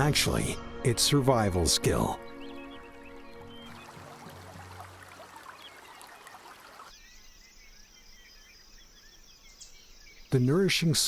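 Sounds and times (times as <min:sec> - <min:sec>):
faint bird chirps: 0:02.2 - 0:11.0.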